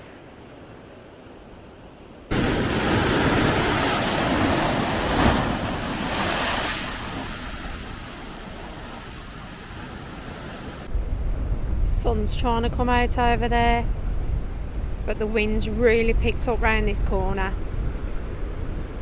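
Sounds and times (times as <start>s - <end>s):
sea waves breaking: 0.0s - 10.9s.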